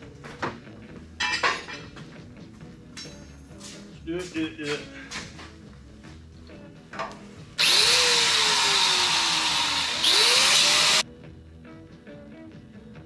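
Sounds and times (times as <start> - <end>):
power tool motor: 7.6 - 11.0.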